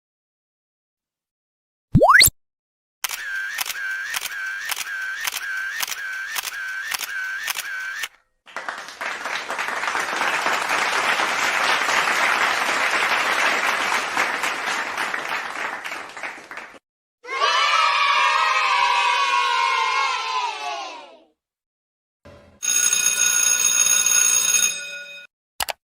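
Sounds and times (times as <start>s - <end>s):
camera shutter clicks: 3.0s - 8.1s
crowd applause: 8.5s - 16.8s.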